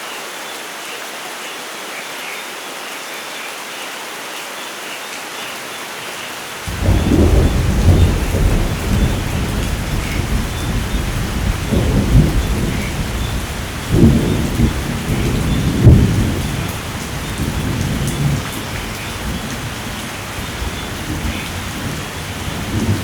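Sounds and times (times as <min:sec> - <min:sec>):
steady rain: 0:00.0 - 0:23.0
rolling thunder: 0:06.7 - 0:23.0.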